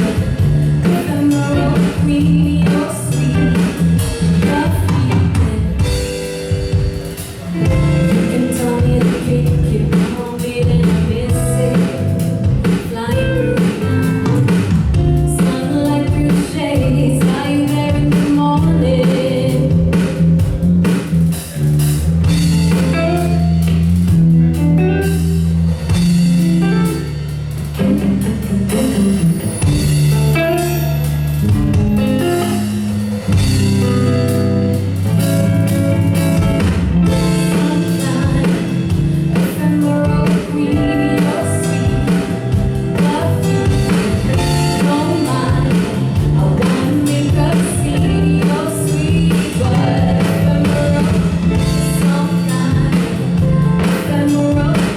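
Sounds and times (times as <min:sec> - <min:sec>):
deep bass notes: 0:00.0 - 0:54.9
drums: 0:00.0 - 0:54.9
guitar: 0:00.0 - 0:54.9
person singing: 0:07.5 - 0:14.0, 0:37.1 - 0:54.9.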